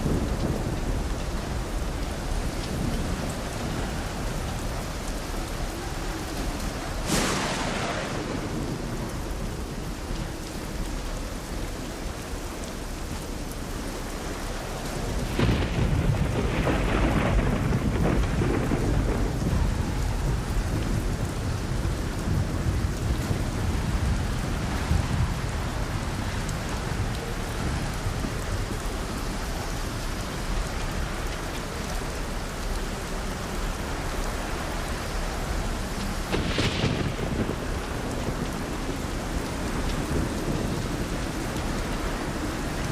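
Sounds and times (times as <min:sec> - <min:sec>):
rolling thunder: 0:00.0 - 0:10.3, 0:15.0 - 0:29.4, 0:35.6 - 0:42.9
heavy rain falling: 0:00.0 - 0:42.9.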